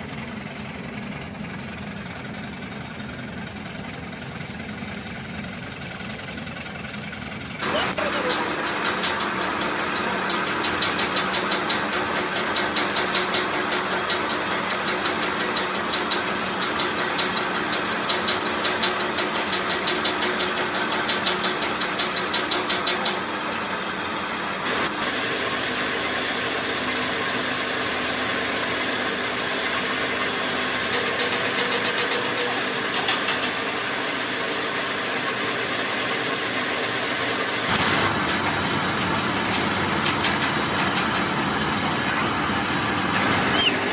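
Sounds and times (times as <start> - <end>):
motor running steadily: 0.0 - 43.9
rapid fine ticking: 3.0 - 23.8.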